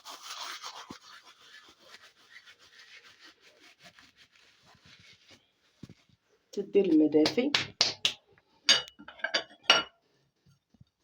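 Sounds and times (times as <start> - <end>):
hands rubbing dry grains in bowl: 0.0 - 7.4.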